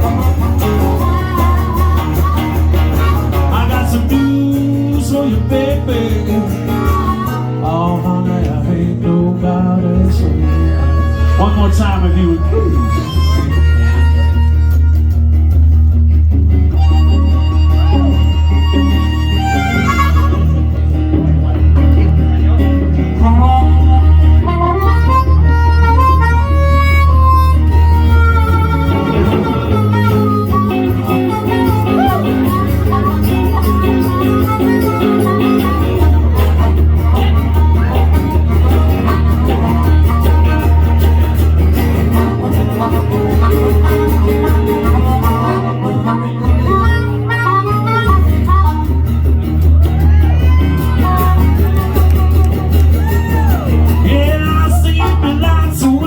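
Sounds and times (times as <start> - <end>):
band playing instrumental: 0.0 - 56.0
guitar: 0.0 - 56.0
steady bass line: 0.0 - 56.0
sustained lead melody: 8.8 - 49.8.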